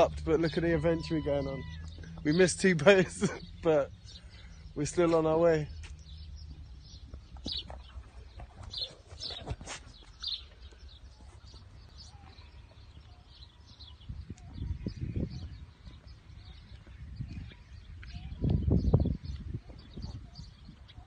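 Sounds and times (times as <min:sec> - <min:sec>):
low rumbling noise: 0:00.0 - 0:08.6
small birds chirping: 0:00.0 - 0:21.0.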